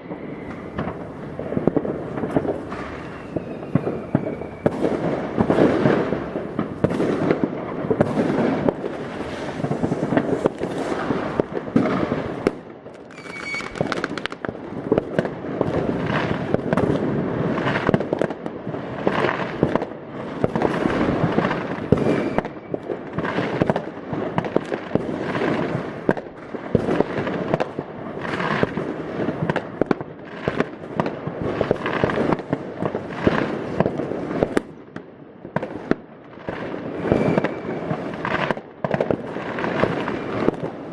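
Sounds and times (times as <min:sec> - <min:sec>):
high firework whistle: 0:00.0 - 0:01.3, 0:02.0 - 0:07.4, 0:13.0 - 0:14.4, 0:21.8 - 0:22.9, 0:36.8 - 0:38.6, 0:39.7 - 0:40.7
firecracker bangs: 0:00.0 - 0:34.8, 0:35.5 - 0:40.9
fireworks bursting: 0:00.0 - 0:40.9.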